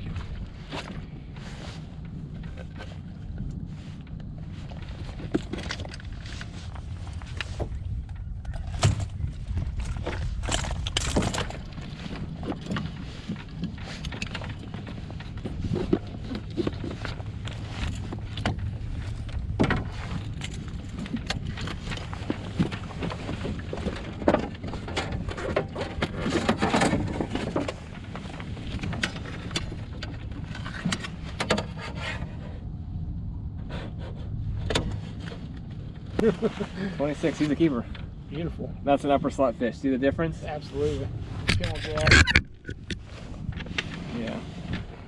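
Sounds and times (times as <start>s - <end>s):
gear knocking and rattling in boat: 0.0s - 32.8s, 33.8s - 45.0s
steady low rumble: 0.0s - 45.0s.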